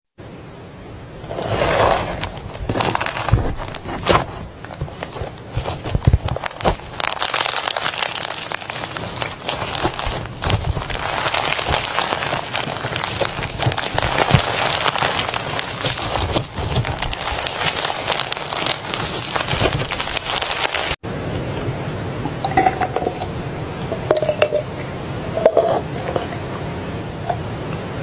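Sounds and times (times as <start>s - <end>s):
slime squishing wet crackles: 4.7s - 21.0s.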